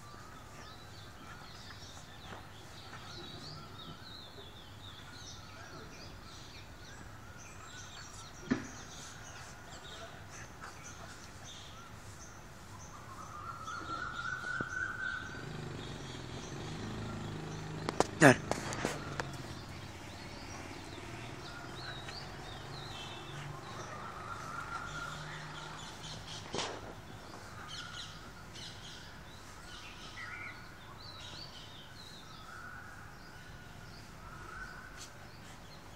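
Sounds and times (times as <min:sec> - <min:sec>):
birds chirping and twittering: 0:00.0 - 0:35.9
drawn-out bird call: 0:12.8 - 0:30.7.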